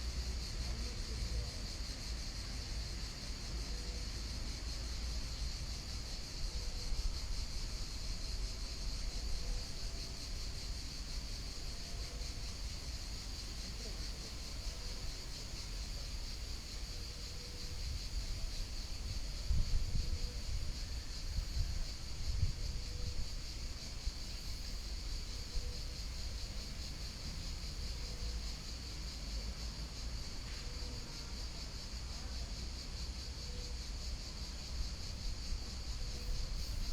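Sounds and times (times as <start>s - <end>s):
high insect hum: 0.0s - 36.9s.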